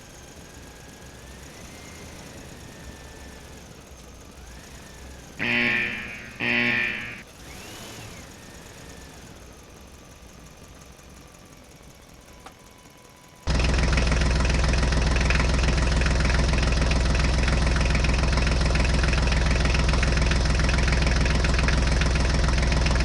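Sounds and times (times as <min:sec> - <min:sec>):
faint whines: 0:04.8 - 0:07.3
horn honks: 0:05.4 - 0:07.2
low engine hum: 0:09.8 - 0:23.0.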